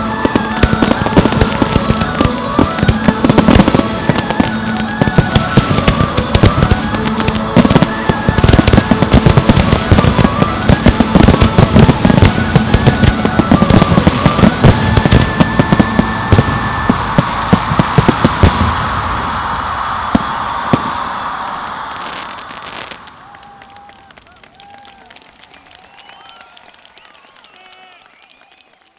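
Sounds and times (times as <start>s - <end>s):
music playing: 0.0s - 18.6s
fireworks bangs and crackles: 0.0s - 28.5s.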